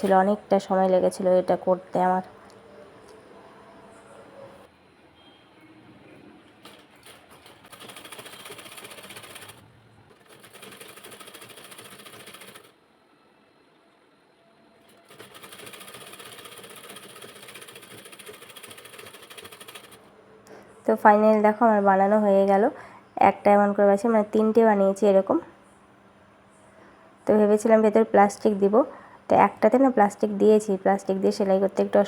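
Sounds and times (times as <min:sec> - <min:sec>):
sewing machine clatter: 0:06.5 - 0:12.7, 0:14.8 - 0:20.1.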